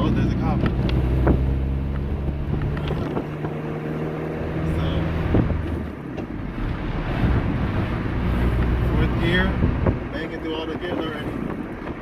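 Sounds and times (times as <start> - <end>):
car engine running: 0.0 - 12.0
road noise: 0.0 - 12.0.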